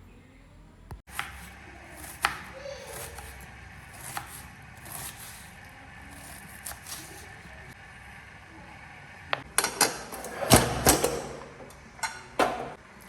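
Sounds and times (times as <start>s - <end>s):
knife chopping vegetables: 1.1s - 7.4s.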